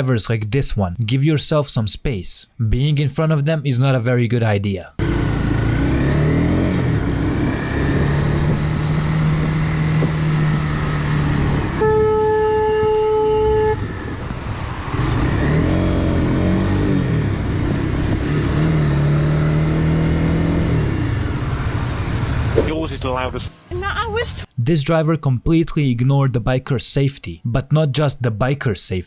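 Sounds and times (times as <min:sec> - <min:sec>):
vehicle engines in traffic: 0:05.0 - 0:24.5
vehicle horn: 0:10.4 - 0:14.2.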